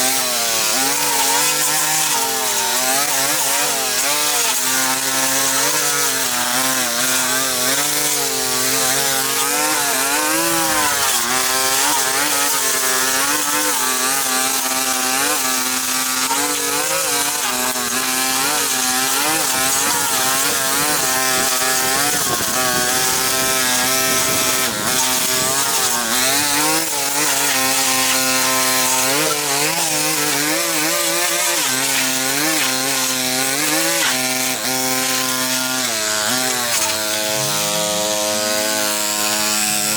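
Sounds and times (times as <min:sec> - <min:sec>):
small engine cutting tool running: 0:00.0 - 0:39.9.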